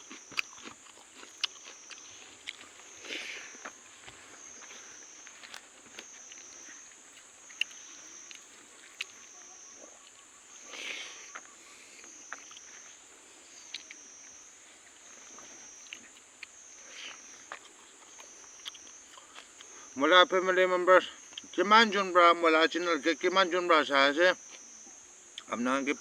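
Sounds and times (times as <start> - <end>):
person eating by hand: 0.0 - 9.4, 10.0 - 20.0, 25.3 - 25.6
high insect drone: 0.0 - 26.0.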